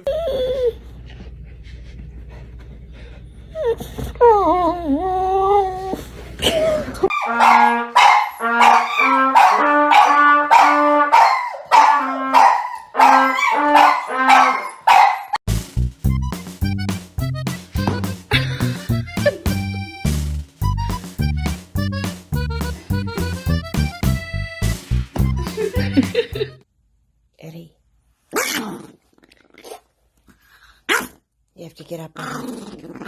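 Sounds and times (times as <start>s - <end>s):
dog whining and howling: 3.6s - 6.0s.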